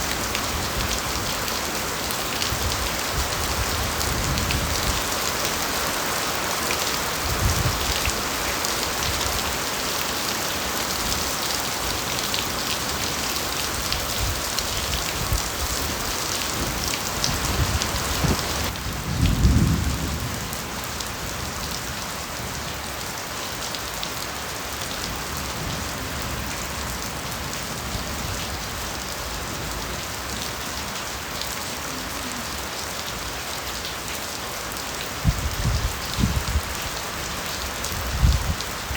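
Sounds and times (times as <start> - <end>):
rain on bamboo: 0.0 - 38.9
thunder rumble: 17.4 - 20.5.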